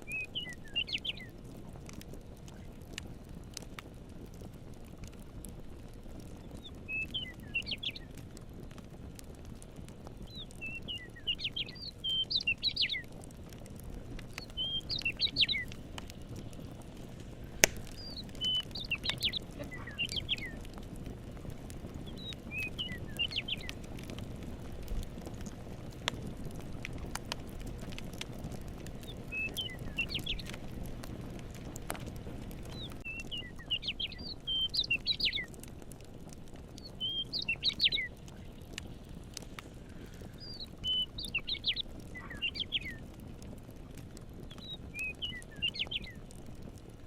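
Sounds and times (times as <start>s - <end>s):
campfire crackling: 0.0s - 47.0s
songbird twittering: 0.1s - 1.3s, 6.4s - 8.1s, 10.3s - 13.1s, 14.3s - 15.8s, 17.8s - 20.7s, 22.0s - 23.8s, 29.0s - 30.6s, 32.7s - 35.6s, 36.8s - 38.5s, 40.3s - 43.0s, 44.5s - 46.2s
steady low rush: 15.6s - 21.9s.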